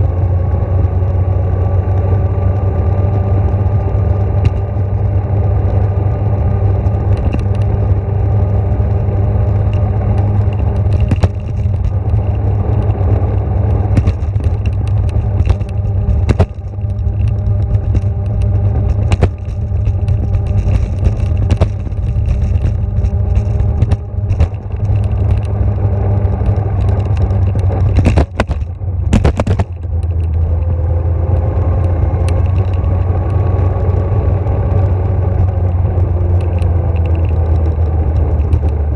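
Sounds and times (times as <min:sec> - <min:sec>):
vehicle running with low hum: 0:00.0 - 0:38.9
clicks and rattles: 0:04.4 - 0:04.7, 0:06.8 - 0:08.0, 0:09.5 - 0:33.4, 0:36.3 - 0:38.9.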